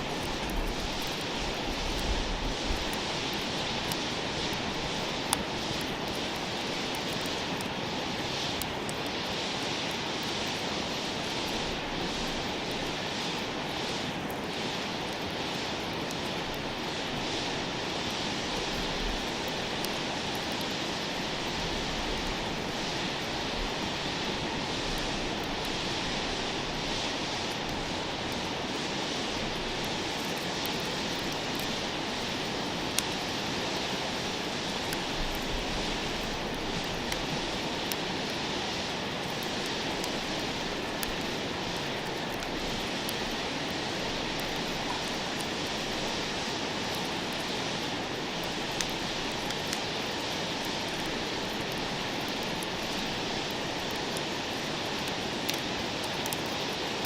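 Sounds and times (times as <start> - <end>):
campfire crackling and popping: 0.0 - 57.0
steady rushing noise: 0.0 - 57.0.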